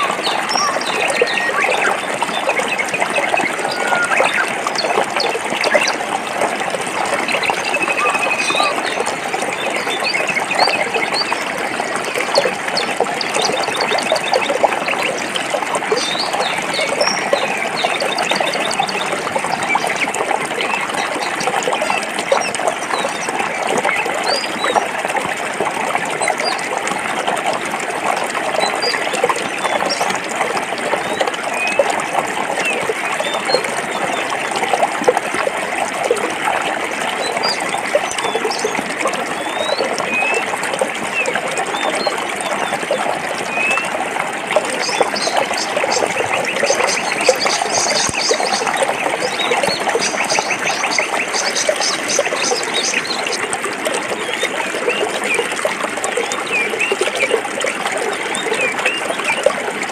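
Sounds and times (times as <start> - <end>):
birds chirping: 0.0 - 24.9, 44.6 - 53.5
stream splashing over rocks: 0.0 - 59.9.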